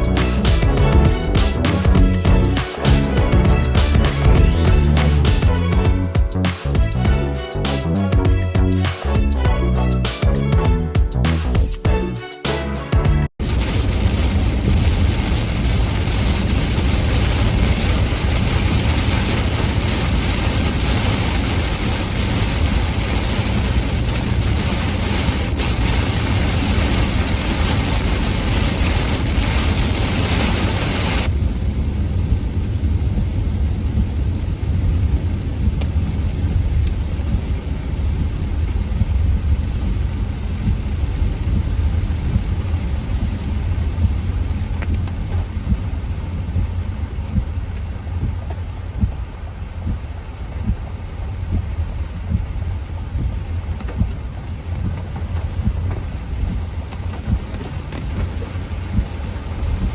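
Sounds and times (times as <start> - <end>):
rain and spray hiss: 0.0 - 59.9
low road rumble inside car: 13.5 - 59.9.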